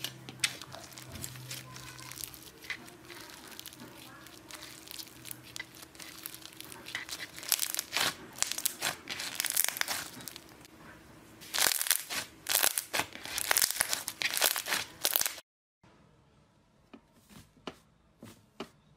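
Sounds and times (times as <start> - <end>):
slime with beads crackling: 0.0 - 10.7, 11.4 - 15.4.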